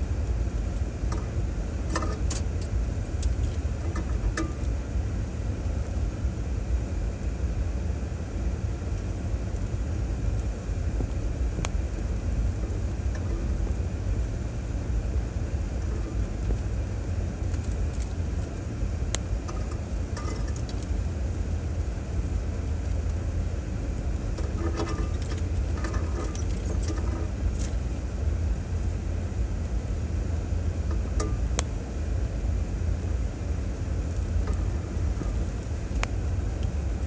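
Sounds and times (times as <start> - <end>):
vehicle engine rumble: 0.0 - 37.0
light clicks and rattles: 1.1 - 4.7, 19.4 - 20.9, 24.3 - 27.8.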